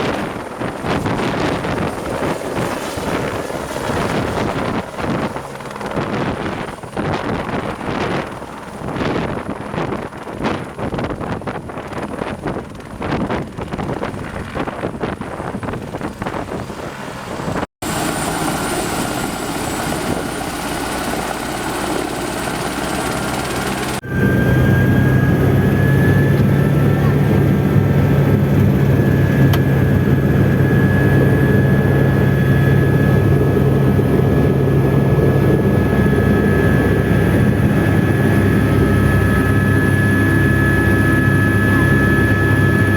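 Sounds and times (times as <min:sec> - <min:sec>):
helicopter low drone: 0:00.0 - 0:42.9
helicopter rotor pulsing: 0:00.0 - 0:42.9
high turbine whine: 0:14.4 - 0:42.9.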